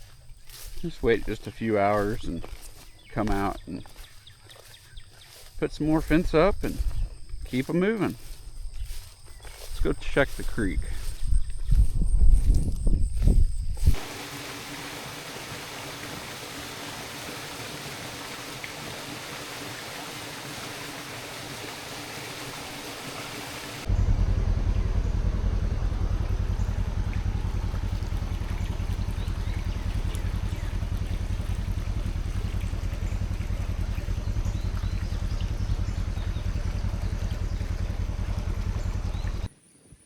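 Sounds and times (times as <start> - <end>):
creek water rushing: 14.0 - 23.9, 25.5 - 39.5
steady low rumble: 23.8 - 39.5.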